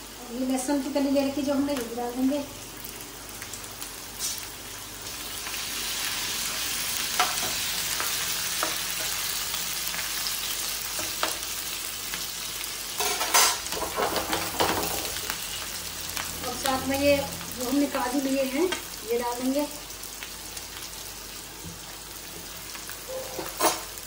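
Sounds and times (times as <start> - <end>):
onions and spices sizzling in oil: 0.0 - 24.0.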